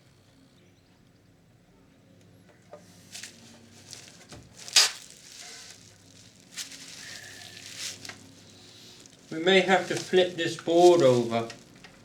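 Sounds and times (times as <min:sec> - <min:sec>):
hands rustling and scraping parts: 0:02.8 - 0:12.0.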